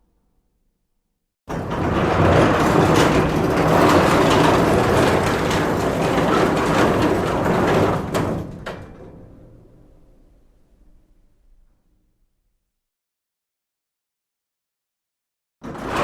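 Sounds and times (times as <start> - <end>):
metal shutter rattling: 1.5 - 9.9.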